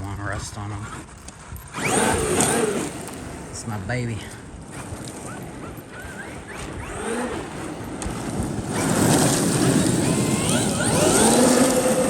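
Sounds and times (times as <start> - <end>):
electric motor whining: 1.7 - 3.5, 4.7 - 12.0.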